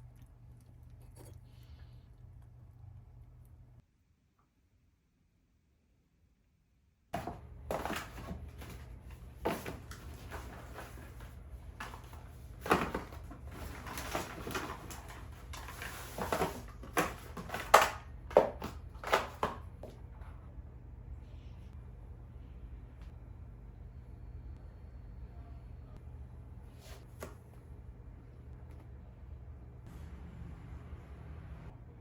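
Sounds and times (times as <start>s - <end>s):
low steady hum: 0.0s - 6.6s, 19.6s - 32.0s.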